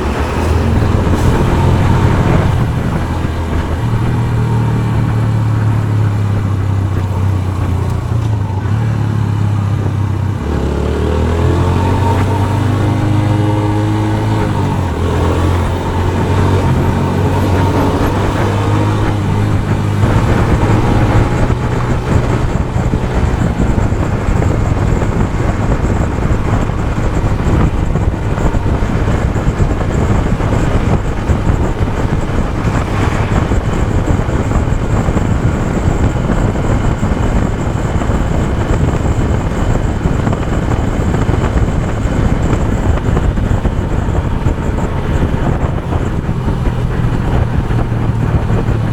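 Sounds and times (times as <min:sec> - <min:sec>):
motorcycle engine running: 0:00.0 - 0:48.9
wind and road noise: 0:00.0 - 0:48.9.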